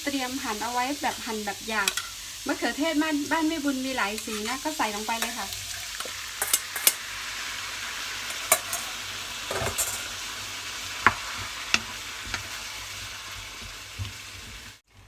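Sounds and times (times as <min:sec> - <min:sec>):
vegetables sizzling in a pan: 0:00.0 - 0:15.0
utensil scraping a pan: 0:04.0 - 0:07.1, 0:08.3 - 0:10.2.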